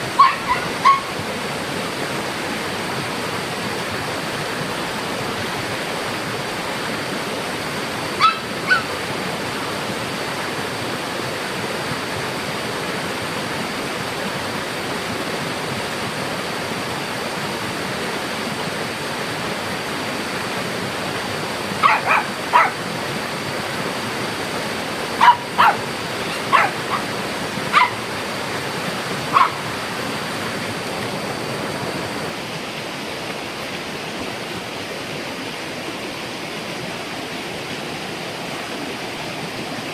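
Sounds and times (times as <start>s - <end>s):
steady rushing noise: 0.0s - 35.0s
dog barking in short yips: 0.2s - 1.1s, 8.2s - 8.9s, 21.8s - 22.8s, 25.2s - 27.0s, 27.7s - 28.0s, 29.3s - 29.6s.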